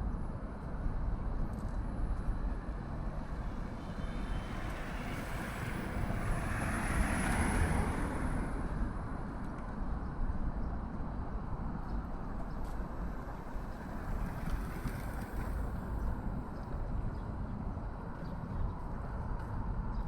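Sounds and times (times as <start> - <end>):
road traffic rumble: 2.6 - 9.8, 11.7 - 18.0.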